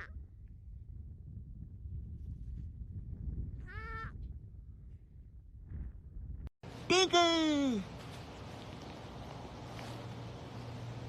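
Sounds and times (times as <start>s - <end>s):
wind rumble on microphone: 0.0s - 6.5s.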